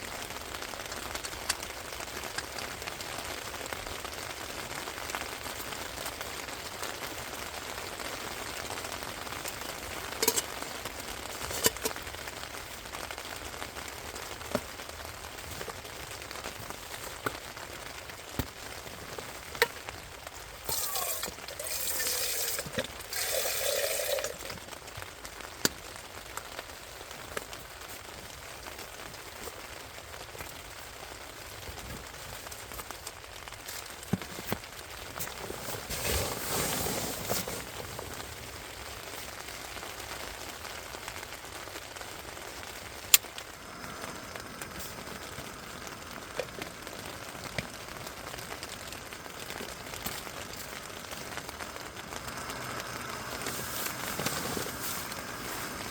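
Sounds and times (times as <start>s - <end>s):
raindrops ticking close by: 0.0s - 36.5s, 37.6s - 55.9s
steady rain: 0.0s - 55.9s
hissing noise with falling tone: 43.0s - 55.9s.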